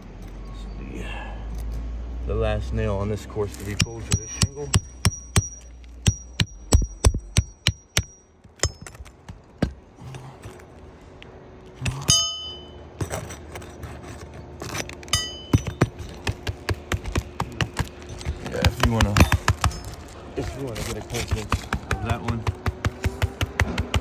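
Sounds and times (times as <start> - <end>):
hammer striking metal nail puller: 3.5 - 9.7, 11.8 - 13.4, 14.6 - 20.1, 20.8 - 24.0.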